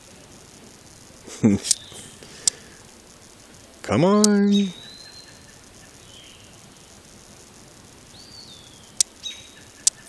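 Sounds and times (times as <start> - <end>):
high bird calls: 1.7 - 2.9, 4.1 - 7.2, 8.0 - 10.0.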